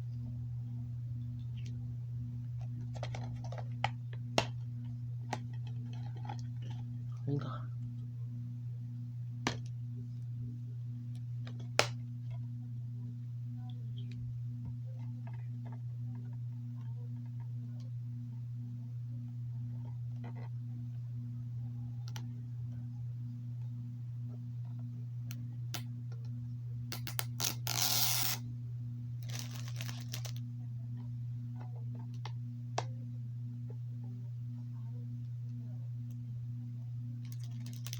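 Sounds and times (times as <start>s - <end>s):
low electrical hum: 0.0s - 37.9s
plastic wrap ripping: 27.2s - 28.4s, 29.2s - 30.4s, 37.3s - 37.9s
plastic packaging crinkling: 29.2s - 30.4s, 37.3s - 37.9s.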